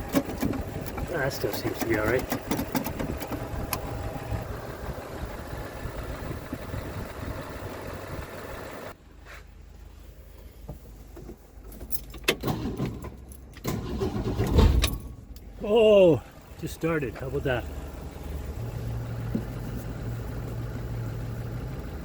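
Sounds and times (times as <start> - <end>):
engine starter cranking: 0.0 - 4.2, 11.8 - 15.3.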